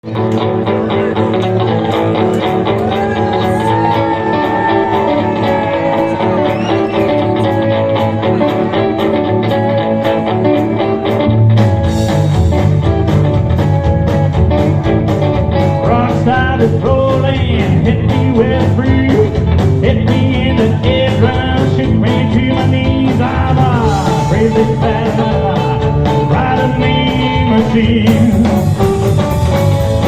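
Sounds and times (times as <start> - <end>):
bass guitar: 0.0 - 30.0
rock and roll guitar lead: 0.0 - 30.0
steady drum beat: 11.2 - 30.0.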